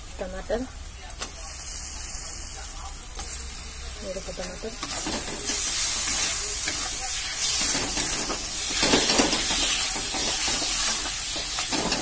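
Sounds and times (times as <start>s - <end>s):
tomato sizzling in hot oil: 0.0s - 12.0s.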